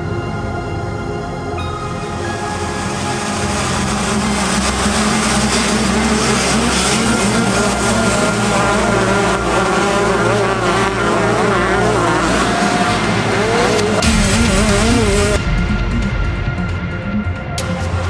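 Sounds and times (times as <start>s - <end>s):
music bass line: 0.0s - 17.9s
motocross bike engines revving: 2.9s - 15.4s.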